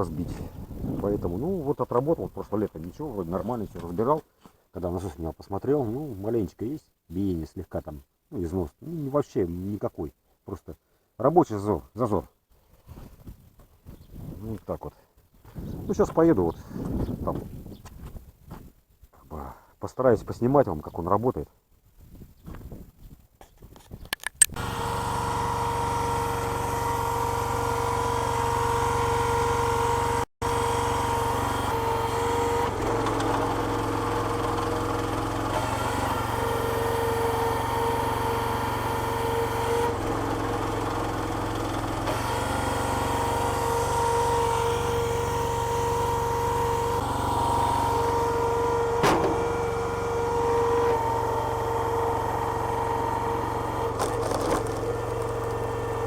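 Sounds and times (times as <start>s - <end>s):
petrol engine running: 24.6s - 56.0s.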